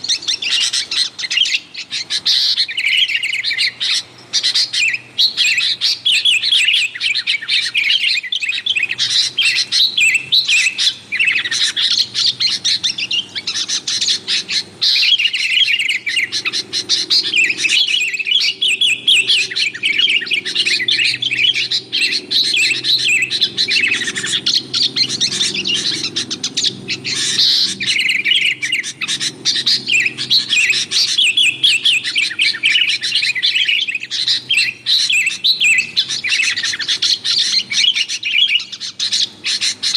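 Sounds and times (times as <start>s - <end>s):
birds chirping and chattering: 0.0s - 39.9s.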